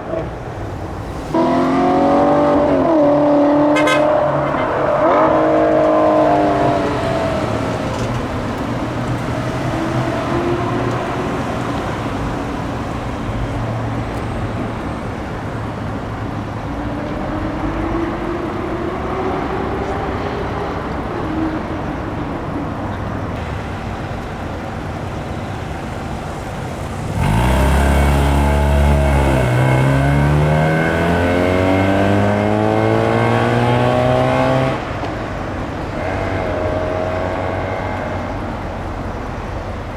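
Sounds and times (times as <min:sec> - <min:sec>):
loud car engine revving: 0:01.1 - 0:14.7, 0:25.1 - 0:39.9
car engines idling: 0:04.2 - 0:33.2, 0:34.8 - 0:39.9.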